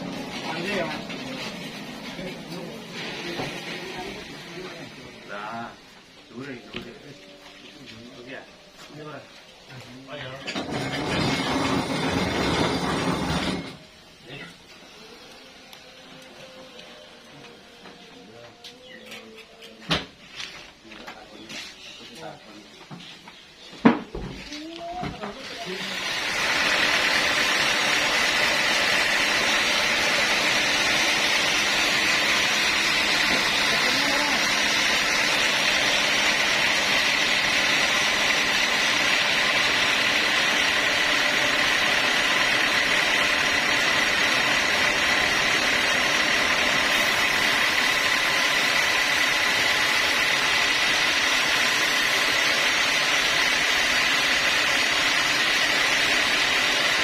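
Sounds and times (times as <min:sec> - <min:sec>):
sawmill saw whining: 0:00.0 - 0:23.2, 0:23.8 - 0:57.0.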